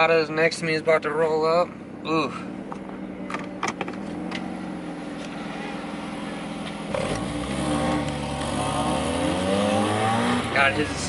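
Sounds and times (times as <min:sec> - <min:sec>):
car engine drone: 0:00.0 - 0:11.0
car engine accelerating: 0:02.2 - 0:11.0.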